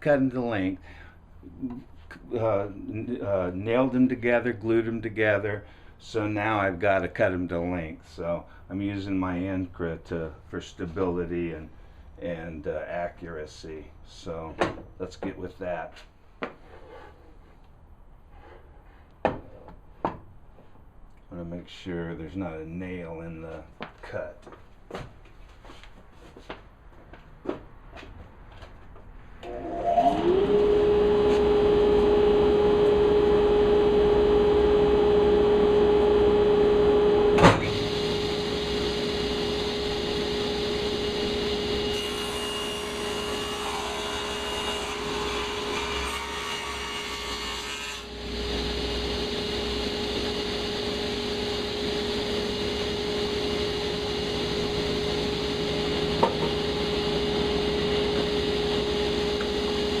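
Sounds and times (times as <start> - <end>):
table saw whining: 29.4 - 60.0.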